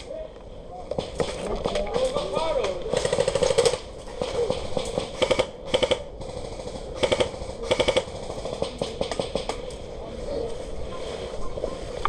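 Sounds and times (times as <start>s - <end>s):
airsoft gun full-auto bursts: 1.0s - 9.5s.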